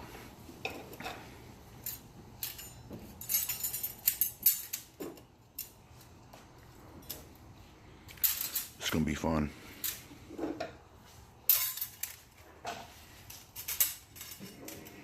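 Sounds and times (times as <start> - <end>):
metal clutch plates clinking: 1.8 - 5.0.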